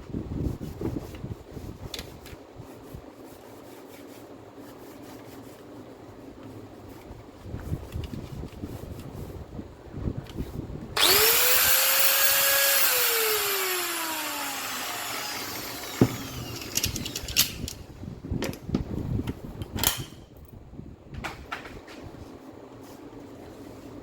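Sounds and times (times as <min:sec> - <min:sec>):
angle grinder whining: 0:11.0 - 0:17.6
tool click and clatter: 0:14.6 - 0:17.8, 0:19.6 - 0:20.2.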